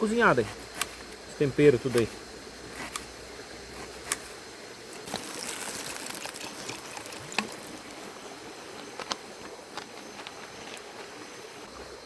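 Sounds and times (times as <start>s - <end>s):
oil trickling from a pan: 5.1s - 8.0s.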